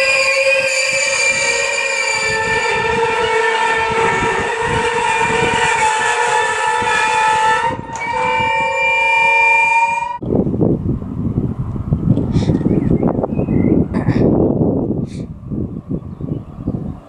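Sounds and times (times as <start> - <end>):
train wheels squealing: 0.0 - 2.8
wheels rumbling and knocking on track: 10.2 - 17.0.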